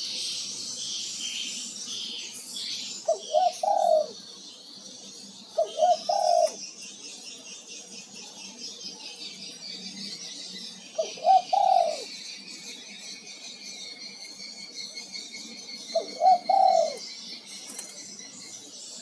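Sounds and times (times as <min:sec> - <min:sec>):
small birds chirping: 0:00.0 - 0:19.0
dove cooing: 0:03.0 - 0:04.2, 0:05.5 - 0:06.6, 0:10.9 - 0:12.2, 0:15.3 - 0:18.1.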